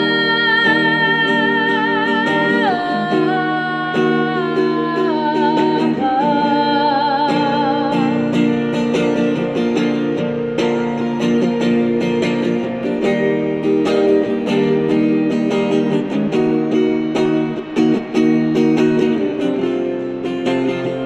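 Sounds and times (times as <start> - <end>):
woman singing with vibrato: 0.0 - 9.5
acoustic guitar strumming: 0.0 - 21.0.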